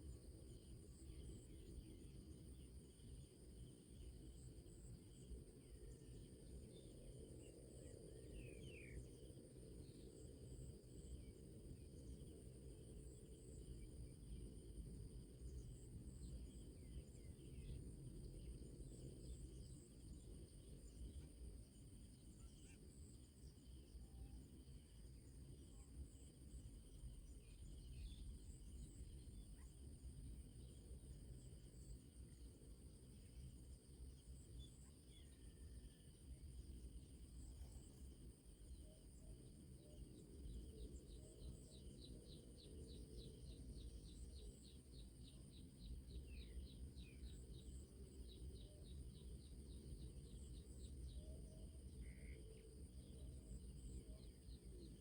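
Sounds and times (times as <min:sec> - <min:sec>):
cricket-like insect drones: 0:00.0 - 0:55.0
faint bird chirps: 0:22.0 - 0:24.4, 0:34.5 - 0:36.0, 0:38.7 - 0:55.0.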